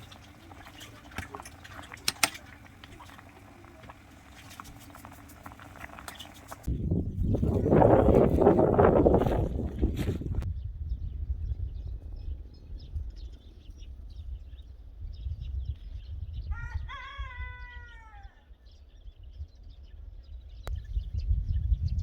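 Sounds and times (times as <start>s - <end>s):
small birds chirping: 0.0s - 16.8s
wind rumble on microphone: 0.0s - 22.0s
rooster crowing: 16.5s - 18.5s.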